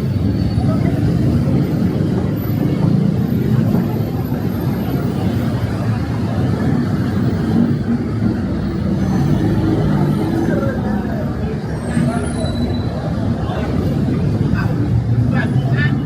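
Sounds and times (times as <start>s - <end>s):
faint voices: 0.0s - 16.0s
vehicle engines rumbling: 0.0s - 16.0s.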